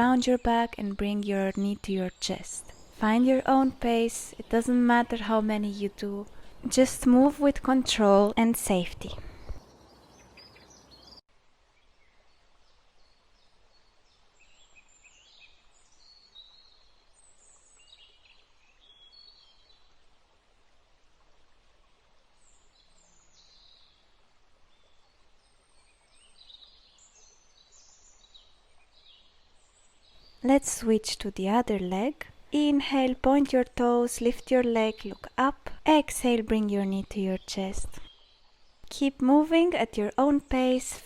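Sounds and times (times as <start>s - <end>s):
birds chirping and trilling: 8.8s - 11.2s.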